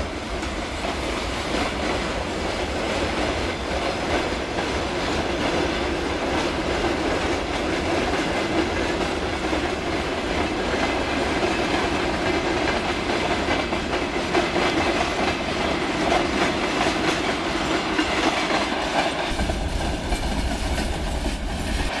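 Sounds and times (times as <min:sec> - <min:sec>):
freight train rolling past: 0:00.0 - 0:22.0.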